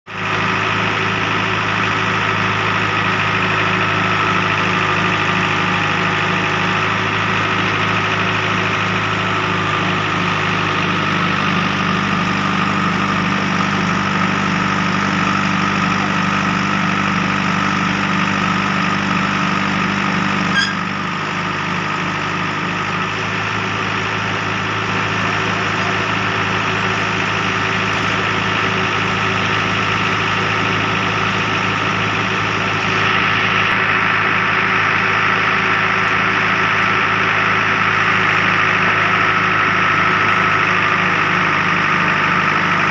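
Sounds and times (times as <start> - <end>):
heavy machinery diesel engine: 0.0 - 42.9.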